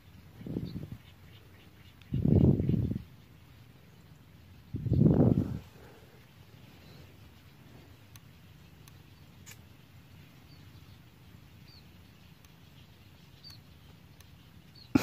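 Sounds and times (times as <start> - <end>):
bird chirping: 0.0 - 15.0
faint ticks: 1.0 - 2.2, 5.8 - 15.0.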